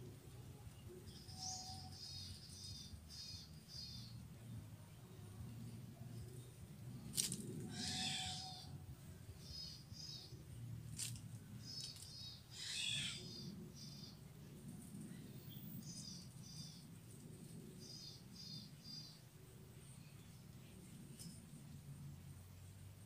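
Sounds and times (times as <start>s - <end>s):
bird chirping: 0.7s - 4.6s
harsh bird calls: 7.6s - 8.8s, 11.7s - 14.2s.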